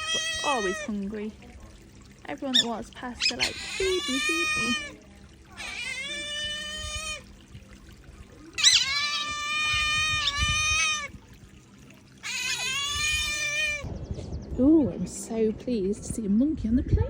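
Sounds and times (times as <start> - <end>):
otters squealing calls: 0.0 - 1.3, 2.4 - 7.4, 8.6 - 11.2, 12.2 - 13.9.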